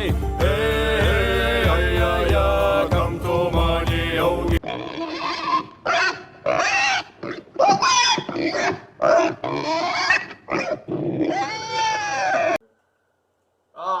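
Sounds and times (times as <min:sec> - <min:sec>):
high-pitched squealing animal calls: 0:04.7 - 0:12.6.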